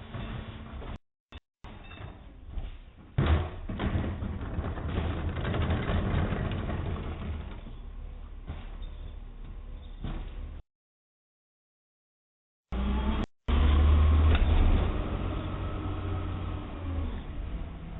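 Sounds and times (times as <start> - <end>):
garbage truck engine running: 3.7 - 8.5.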